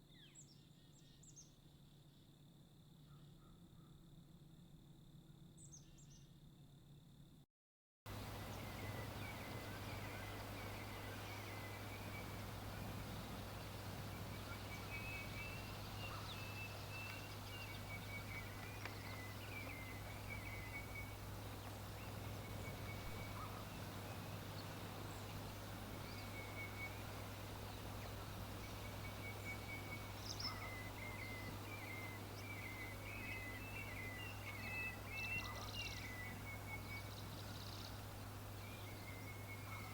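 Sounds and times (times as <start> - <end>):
low hum: 8.1 - 39.9
small birds chirping: 8.1 - 39.9
steady hiss: 8.1 - 39.9.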